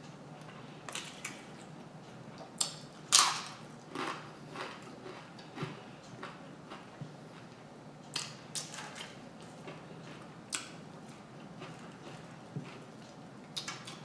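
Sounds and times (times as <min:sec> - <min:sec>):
person chewing crunchy food: 0:02.5 - 0:07.6, 0:08.9 - 0:14.0.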